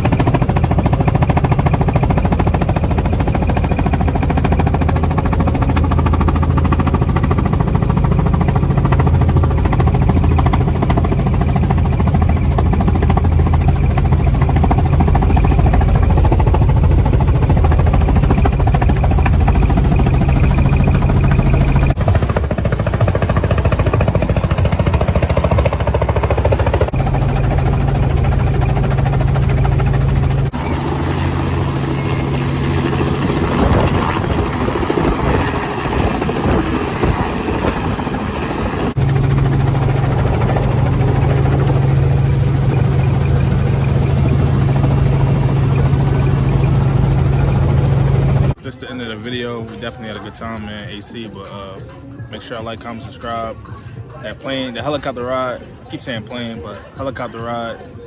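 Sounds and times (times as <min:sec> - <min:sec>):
helicopter rotor chopping: 0:00.0 - 0:58.0.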